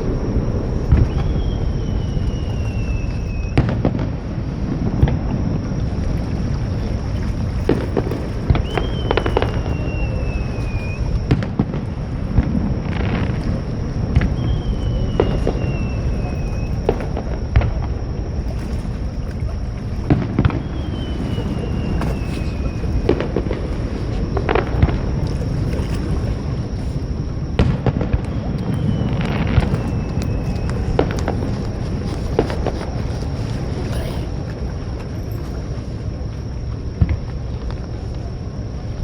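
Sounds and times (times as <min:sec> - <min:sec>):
fireworks booms and cracks: 0:00.0 - 0:01.6, 0:03.5 - 0:05.7, 0:07.7 - 0:10.3, 0:11.3 - 0:18.2, 0:20.1 - 0:25.3, 0:27.2 - 0:33.0, 0:37.0 - 0:37.7
low rumble: 0:00.0 - 0:39.0
high falling whistle: 0:00.9 - 0:03.6, 0:20.4 - 0:23.2, 0:28.3 - 0:31.6.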